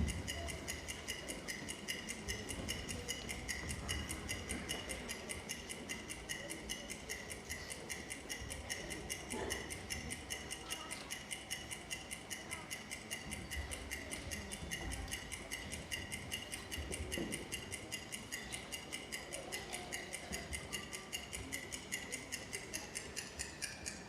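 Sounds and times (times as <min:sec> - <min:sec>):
fast ticking: 0:00.0 - 0:24.0.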